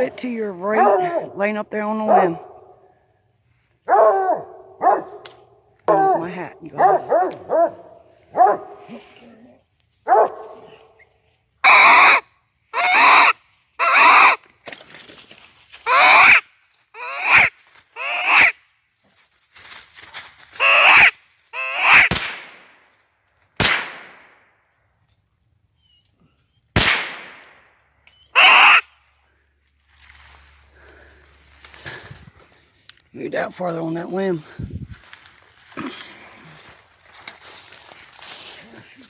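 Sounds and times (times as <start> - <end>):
dog barking: 0.8 - 1.3, 3.9 - 5.2, 6.8 - 9.0, 10.1 - 10.8.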